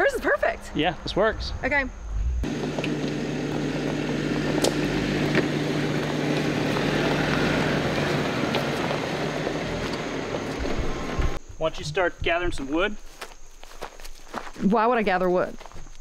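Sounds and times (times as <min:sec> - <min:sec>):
road and tyre noise: 0:01.6 - 0:11.4
vehicle engine hum: 0:02.2 - 0:11.4.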